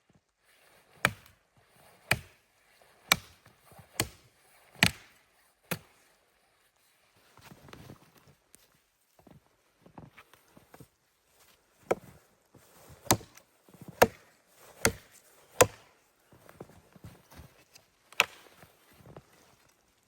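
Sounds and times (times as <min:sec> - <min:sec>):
wood being chopped: 0:01.0 - 0:01.3, 0:02.1 - 0:02.4, 0:03.1 - 0:04.2, 0:04.8 - 0:05.9, 0:13.0 - 0:15.9, 0:18.1 - 0:18.5.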